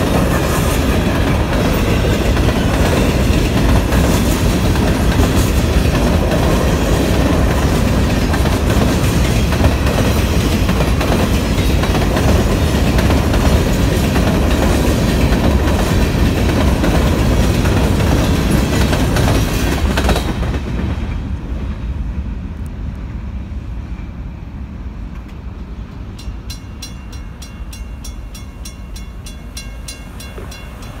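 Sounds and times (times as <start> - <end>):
freight train wheels rumbling: 0.0 - 31.0
crossing bell ringing: 26.1 - 31.0.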